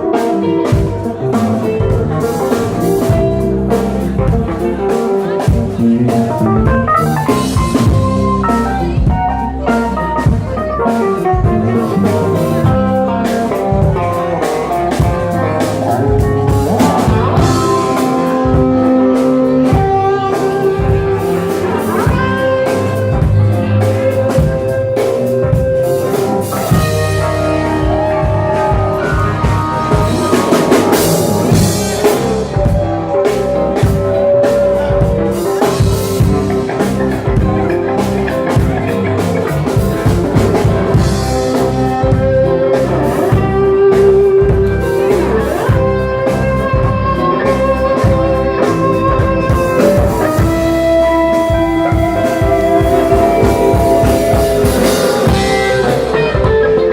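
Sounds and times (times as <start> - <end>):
blues-rock band playing: 0.0 - 56.9.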